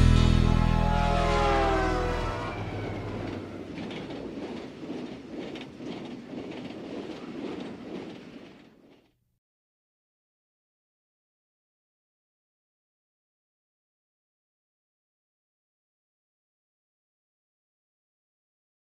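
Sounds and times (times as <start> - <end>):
song chord ringing out: 0.0 - 3.0
train clickety-clack on rails: 1.3 - 9.1.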